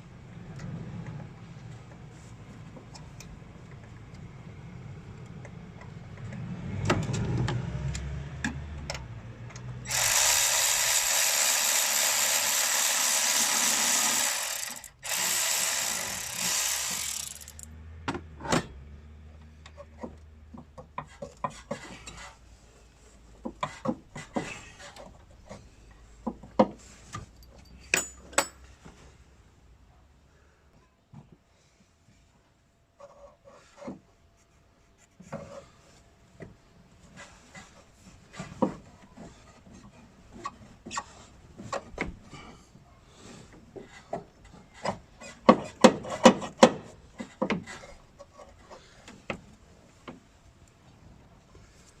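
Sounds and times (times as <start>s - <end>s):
power tool running: 9.8s - 17.7s
tools and metal parts clicking: 12.3s - 17.7s.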